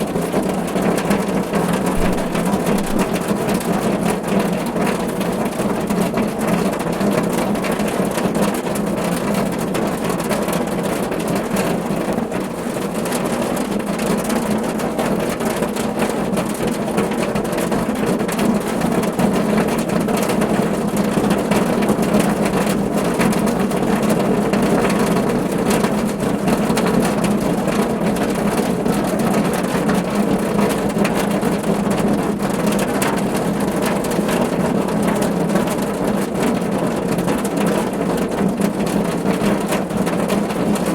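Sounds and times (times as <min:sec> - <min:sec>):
rain on a car roof: 0:00.0 - 0:40.9.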